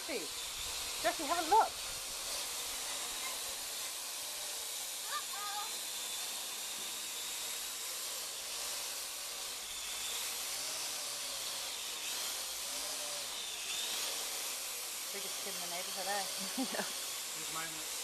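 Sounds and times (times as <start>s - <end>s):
drone propellers whirring: 0.0s - 18.0s
motor whine: 0.0s - 18.0s.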